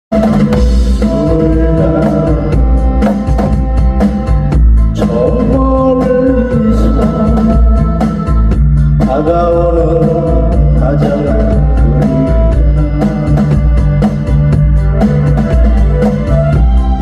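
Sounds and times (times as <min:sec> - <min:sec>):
drum kit playing a steady beat: 0:00.1 - 0:17.0
recorded song with singing: 0:00.8 - 0:02.9, 0:05.0 - 0:14.0.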